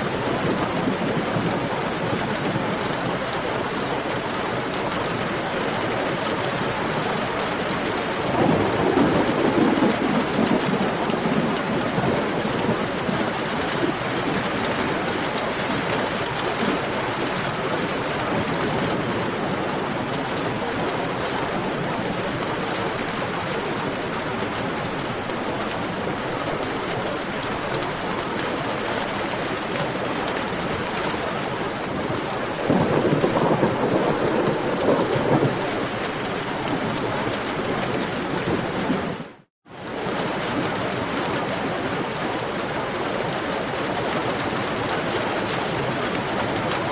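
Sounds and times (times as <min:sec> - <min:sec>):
heavy rain falling: 0:00.0 - 0:46.9
thunder rumble: 0:06.9 - 0:29.2, 0:31.8 - 0:39.3.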